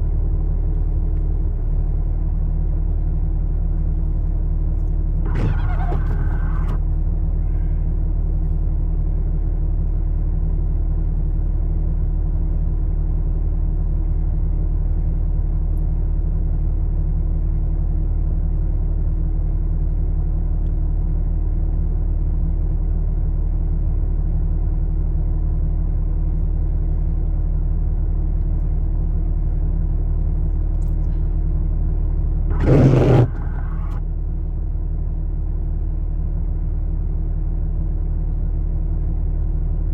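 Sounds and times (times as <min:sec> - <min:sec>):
vehicle engine idling: 0:00.0 - 0:16.3, 0:24.7 - 0:39.9.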